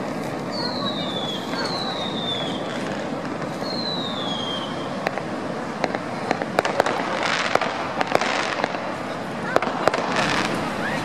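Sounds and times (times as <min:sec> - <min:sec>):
firework whistle falling: 0:00.0 - 0:08.8
fireworks cracking: 0:00.0 - 0:11.0.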